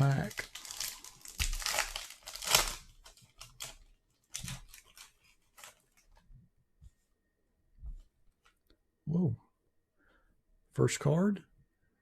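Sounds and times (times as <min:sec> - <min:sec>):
foil wrapper tearing: 0:00.0 - 0:06.0
foil crinkling and rustling: 0:00.0 - 0:06.2.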